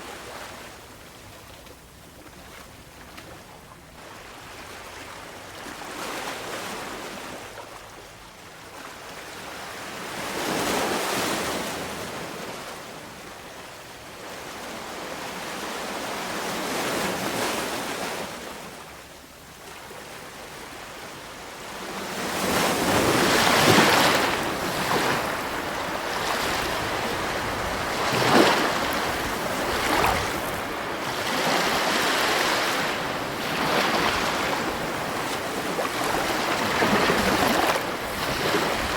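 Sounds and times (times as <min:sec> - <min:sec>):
sea waves breaking on shore: 0:19.6 - 0:38.9.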